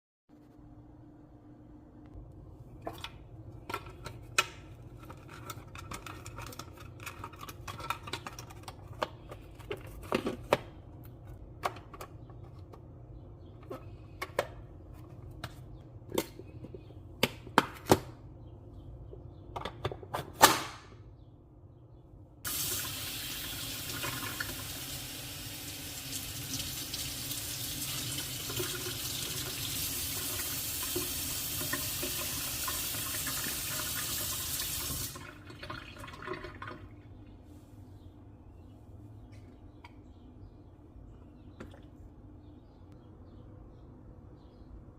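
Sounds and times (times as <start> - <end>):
clicks and knocks of handling: 2.9 - 18.2
tap water running into sink: 22.5 - 36.9.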